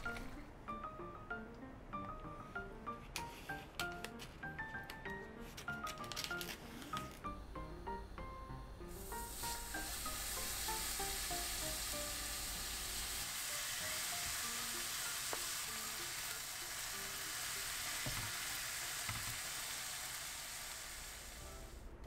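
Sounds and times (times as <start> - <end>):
food sizzling in a pan: 8.2 - 21.9.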